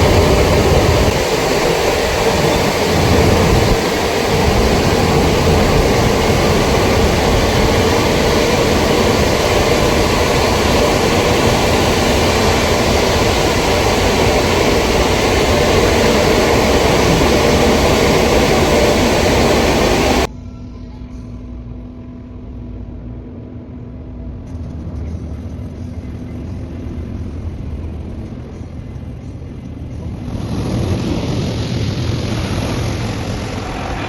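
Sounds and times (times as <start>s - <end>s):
pressure washer spraying water: 0.0s - 20.3s.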